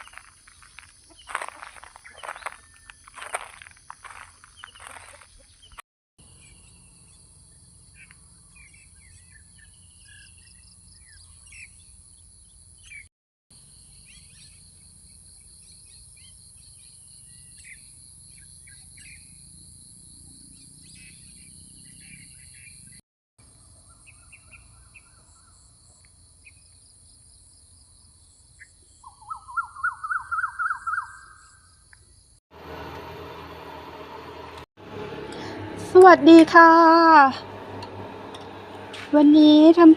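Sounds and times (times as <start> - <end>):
high drone of insects: 0.0 - 5.5, 32.6 - 39.9
birds chirping and calling: 0.0 - 5.8.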